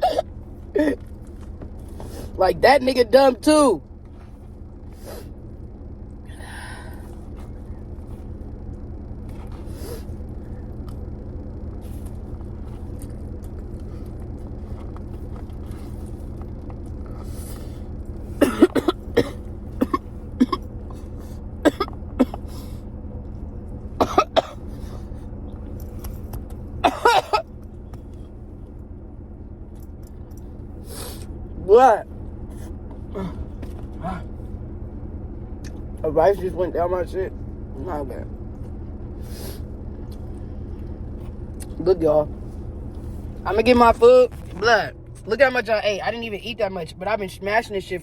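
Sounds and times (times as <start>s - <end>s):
man coughing harshly: 0.0s - 1.0s, 18.4s - 20.6s, 21.6s - 22.5s, 24.0s - 24.6s, 26.8s - 27.5s
steady low hum: 0.0s - 48.0s.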